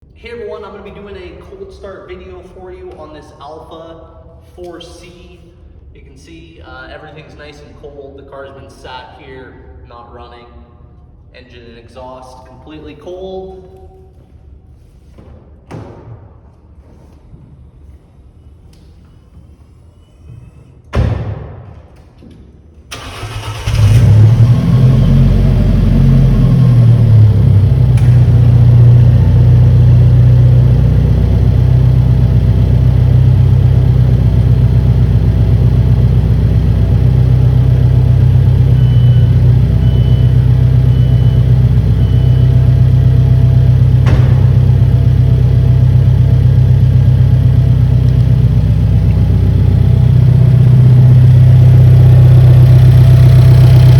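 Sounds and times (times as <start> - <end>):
car engine starting and idling: 22.9 - 53.9
short thud: 44.0 - 45.0.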